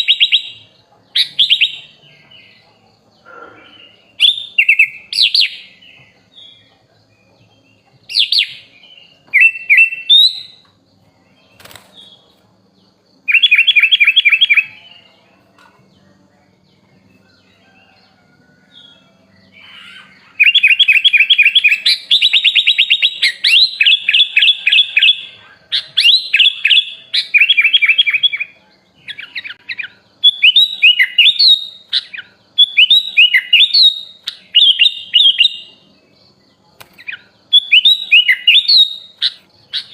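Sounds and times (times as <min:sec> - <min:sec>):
bird whistled notes and trill: 0:00.0 - 0:02.4, 0:03.7 - 0:06.7, 0:08.0 - 0:10.8, 0:13.2 - 0:15.2, 0:18.7 - 0:35.8, 0:36.8 - 0:39.9
bird singing varied phrases: 0:00.0 - 0:39.9
rapid bird chirps and warbling: 0:18.6 - 0:39.9.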